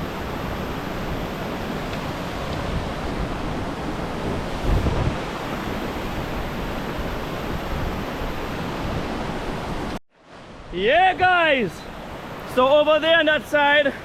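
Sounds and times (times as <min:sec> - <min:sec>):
wind buffet on microphone: 0:00.0 - 0:10.0.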